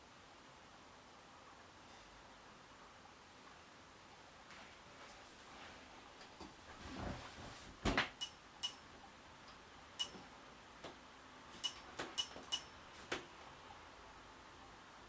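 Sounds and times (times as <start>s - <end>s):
faint steady hiss: 0.0s - 15.0s
sharp ringing clicks: 8.2s - 8.9s, 10.0s - 10.2s, 11.6s - 12.8s.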